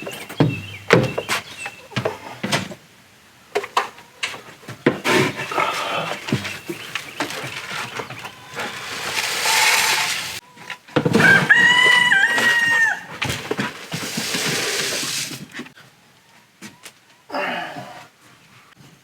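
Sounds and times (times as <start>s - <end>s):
rustling: 4.3s - 15.8s
rooster crowing: 11.2s - 13.2s.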